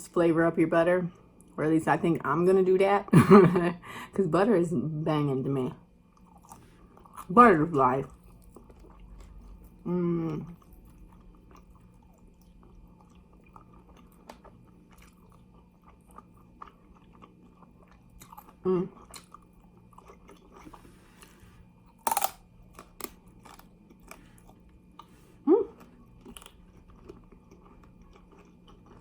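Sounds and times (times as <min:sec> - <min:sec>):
chewing fried chicken: 0:06.1 - 0:29.0.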